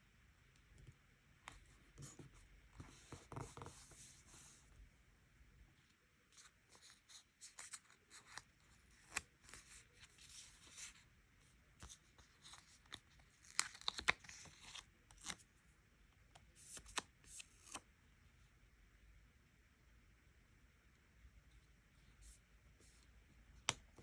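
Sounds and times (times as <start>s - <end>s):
paper crackling: 11.8s - 15.4s.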